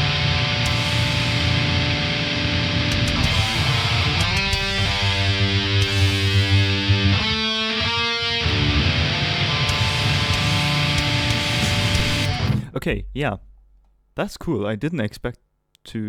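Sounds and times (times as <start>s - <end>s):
distorted electric guitar riff: 0.0s - 13.2s.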